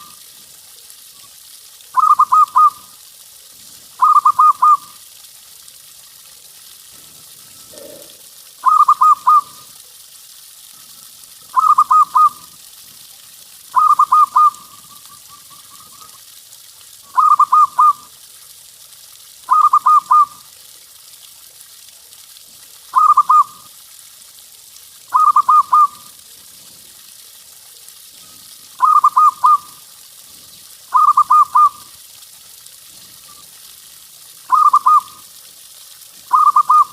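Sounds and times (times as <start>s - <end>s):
dove cooing: 2.0s - 2.8s, 4.0s - 4.9s, 7.5s - 9.6s, 11.5s - 12.5s, 13.7s - 16.1s, 17.1s - 18.0s, 25.1s - 26.0s, 28.8s - 29.7s, 30.9s - 31.8s, 34.5s - 35.2s, 36.3s - 36.9s.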